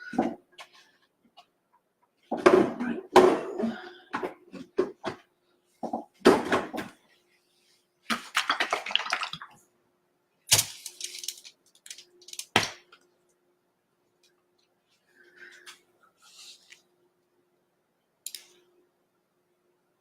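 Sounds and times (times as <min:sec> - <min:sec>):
faint steady hum: 0:06.8 - 0:20.0.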